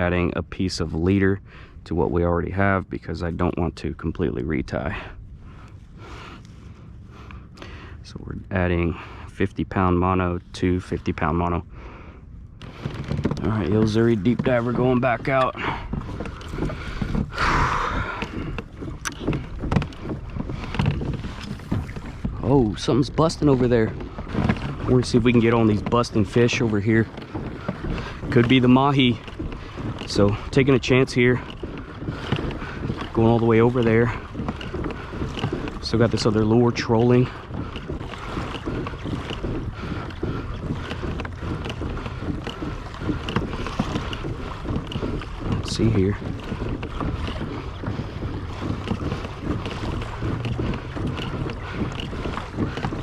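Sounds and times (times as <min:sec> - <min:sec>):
water splashing against kayak hull: 0:00.0 - 0:53.0
wind buffeting microphone: 0:00.0 - 0:53.0.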